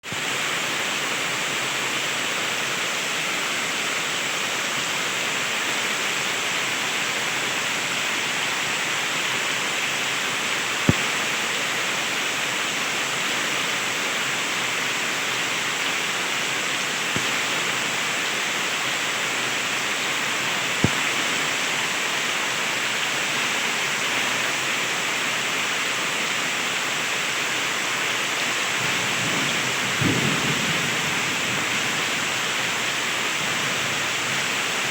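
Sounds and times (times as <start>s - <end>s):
heavy rain pouring: 0.0s - 34.9s
raindrops tapping on hard surface: 10.8s - 11.3s, 17.1s - 17.7s, 20.7s - 21.6s
low thunder rumble: 28.8s - 32.4s.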